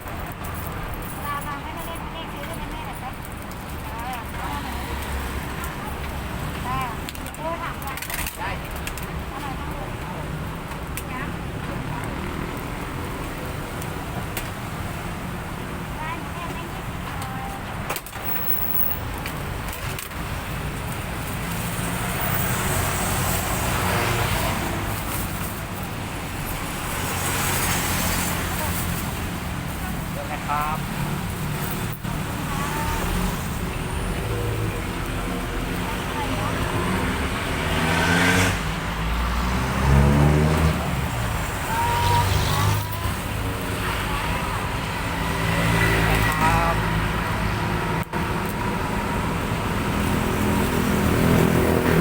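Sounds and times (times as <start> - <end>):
vehicle engine passing: 32.1 - 44.0, 44.8 - 52.0.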